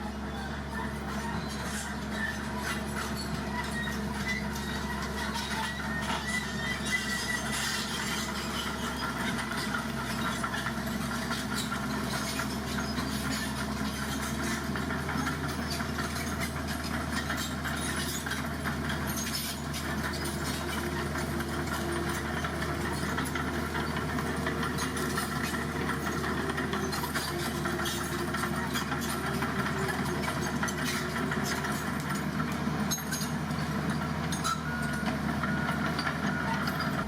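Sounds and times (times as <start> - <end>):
heavy diesel engine running: 0.0 - 37.0.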